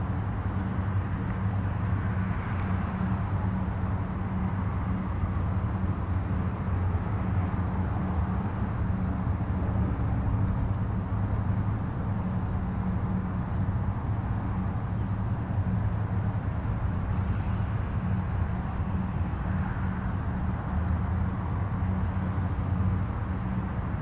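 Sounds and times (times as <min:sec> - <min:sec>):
distant highway traffic rumble: 0:00.0 - 0:24.0.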